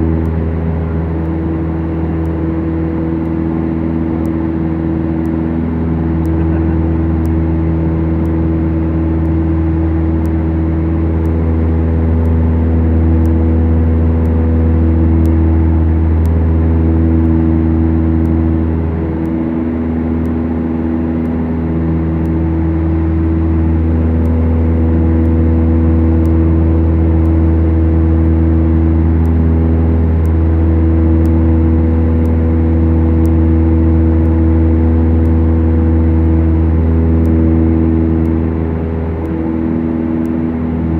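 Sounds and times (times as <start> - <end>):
aircraft engines droning in cabin: 0.0 - 40.9.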